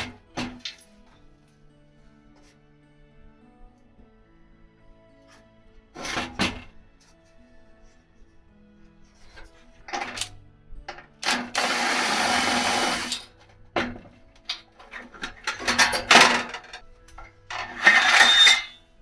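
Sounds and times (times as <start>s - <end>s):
small power tool running: 11.2s - 13.3s.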